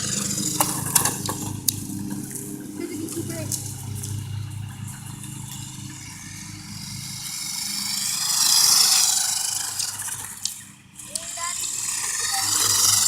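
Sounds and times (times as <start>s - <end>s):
toy car motor whirring: 0.0s - 1.4s, 5.6s - 13.0s.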